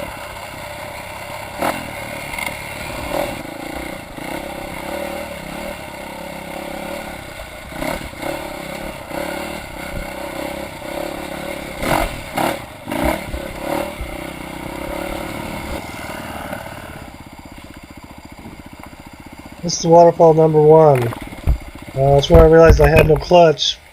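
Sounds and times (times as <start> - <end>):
dirt bike engine revving: 0.0 - 23.9
bike clattering over rocks: 21.0 - 23.3.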